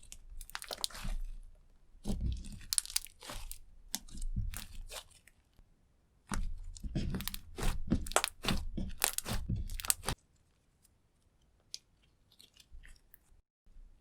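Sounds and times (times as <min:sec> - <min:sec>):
slime squelching: 0:00.0 - 0:05.6, 0:06.3 - 0:10.2.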